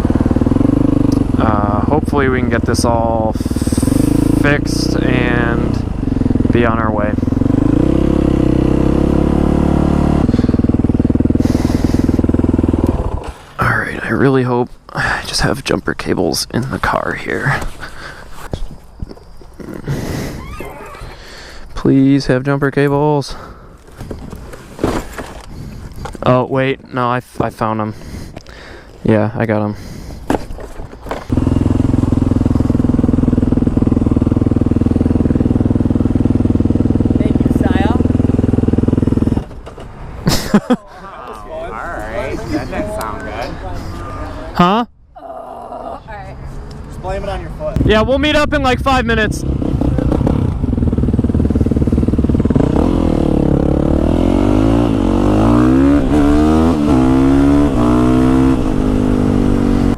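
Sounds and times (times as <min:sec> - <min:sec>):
motorcycle engine idling: 0:00.0 - 0:13.4, 0:31.1 - 0:39.7, 0:47.8 - 0:54.7
knocks and rustles: 0:23.8 - 0:26.2.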